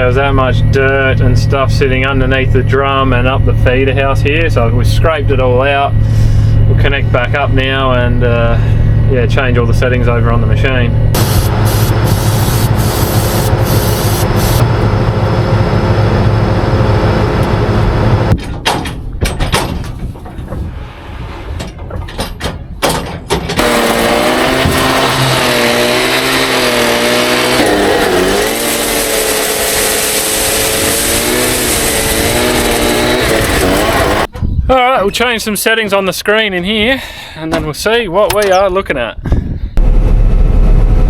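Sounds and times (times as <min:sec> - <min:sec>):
combine harvester engine humming: 0:00.0 - 0:19.1, 0:23.5 - 0:34.4
scattered clicks and knocks: 0:18.3 - 0:20.6, 0:21.6 - 0:23.8.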